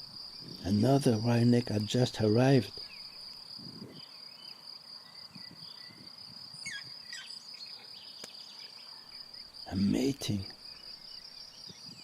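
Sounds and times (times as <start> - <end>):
crickets chirring: 0.0 - 12.0
faint bird calls: 2.8 - 12.0.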